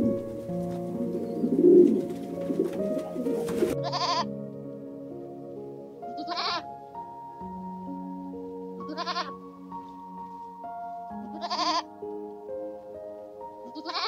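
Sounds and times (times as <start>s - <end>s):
music of sustained notes: 0.0s - 14.0s
goat bleating: 3.8s - 4.3s, 6.2s - 6.6s, 8.9s - 9.3s, 11.3s - 11.9s, 13.7s - 14.0s.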